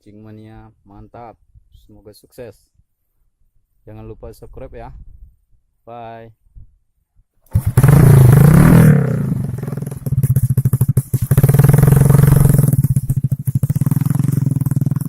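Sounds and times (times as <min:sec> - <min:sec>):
small engine puttering and revving: 0:07.5 - 0:15.0.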